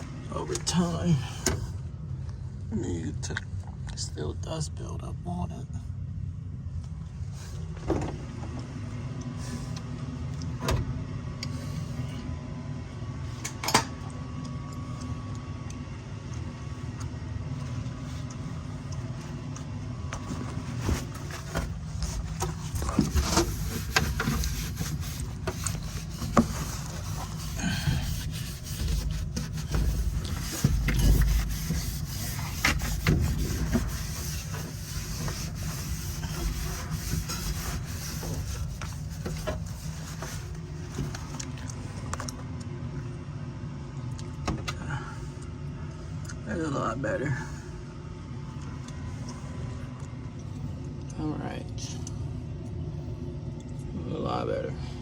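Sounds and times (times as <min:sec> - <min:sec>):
steady low hum: 0:00.0 - 0:55.0
scraping and knocking on blower wheel: 0:20.1 - 0:41.4.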